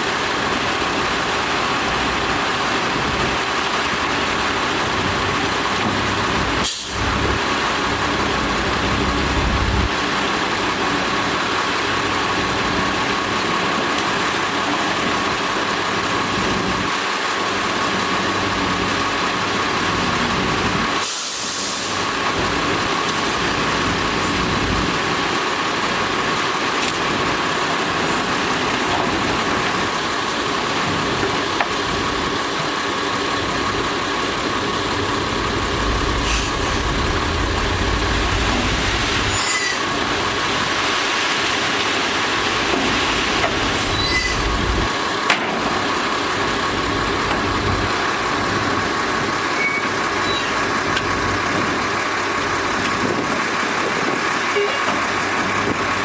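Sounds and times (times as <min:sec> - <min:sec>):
diesel machinery running: 0:00.0 - 0:56.0
steady whine: 0:34.3 - 0:40.7.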